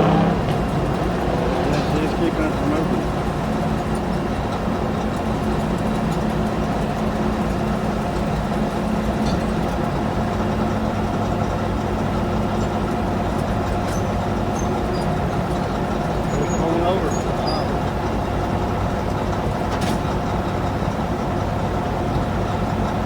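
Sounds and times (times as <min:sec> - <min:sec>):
engine humming steadily: 0:00.0 - 0:23.0.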